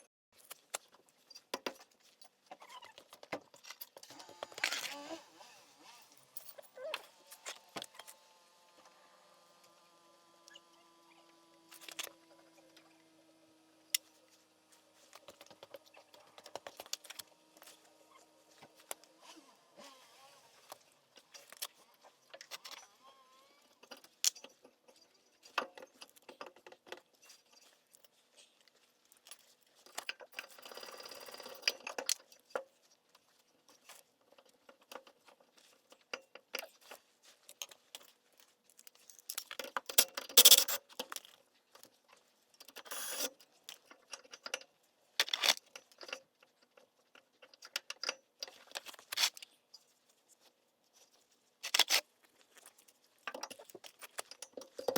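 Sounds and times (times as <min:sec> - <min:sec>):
metal tools clicking and clinking: 0:06.0 - 0:08.2, 0:38.8 - 0:41.4.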